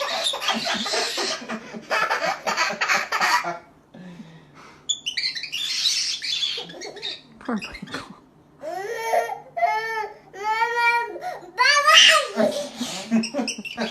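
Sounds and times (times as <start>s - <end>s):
parrot harsh squawk: 5.0s - 7.3s
small child wailing and crying: 8.6s - 12.5s.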